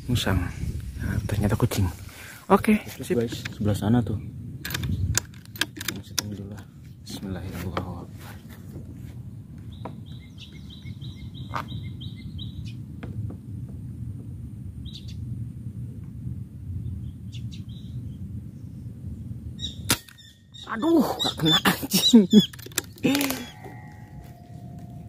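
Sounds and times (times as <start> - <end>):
low outdoor rumble: 0.0 - 25.0
small bird chirping: 9.6 - 12.8, 16.9 - 18.8, 19.6 - 25.0.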